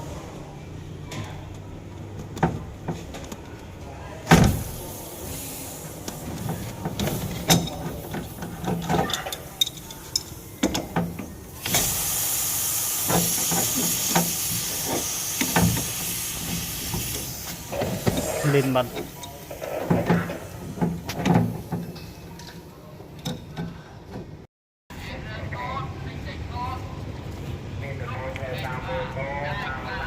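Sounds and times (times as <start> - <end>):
clicks and knocks of parts handled: 7.0 - 11.2
cleaning spray hissing: 11.6 - 19.0.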